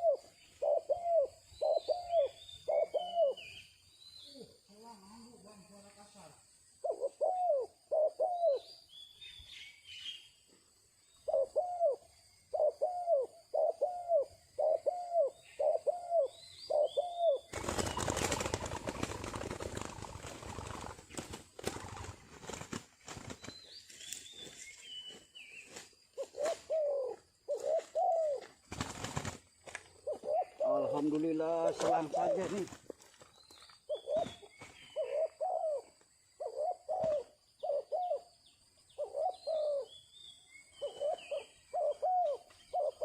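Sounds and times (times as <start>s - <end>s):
dove cooing: 0.0s - 3.6s, 6.8s - 8.8s, 11.2s - 22.7s, 26.1s - 33.0s, 33.9s - 38.3s, 38.9s - 40.0s, 40.6s - 43.0s
small birds chirping: 0.0s - 43.0s
loud rustling flapping: 17.5s - 23.6s.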